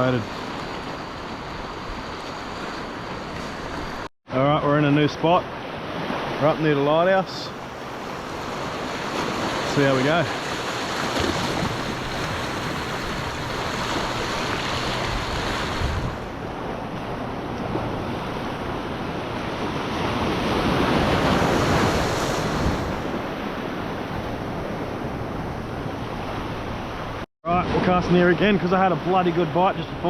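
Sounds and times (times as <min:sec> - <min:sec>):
ocean surf washing in: 0:00.0 - 0:04.1, 0:04.8 - 0:30.0
wind on microphone: 0:10.8 - 0:27.2.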